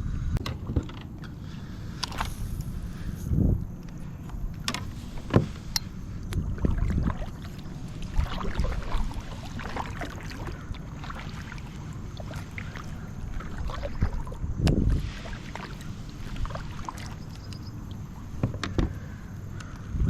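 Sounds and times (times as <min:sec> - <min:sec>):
water splashing and sloshing: 0:00.4 - 0:20.0
knocks against kayak hull: 0:18.3 - 0:19.0.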